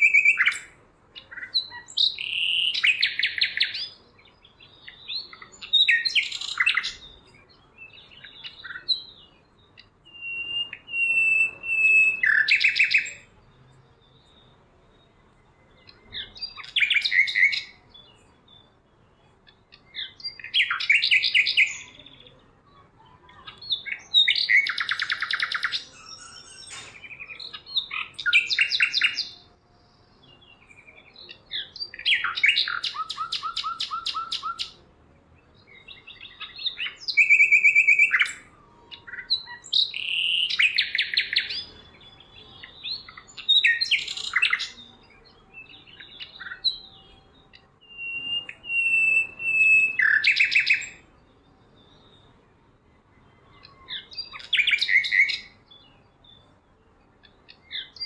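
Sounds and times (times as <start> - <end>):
bird chattering and trilling: 4.8 - 7.2, 7.8 - 13.3, 19.4 - 22.3, 23.2 - 29.4, 30.8 - 34.8.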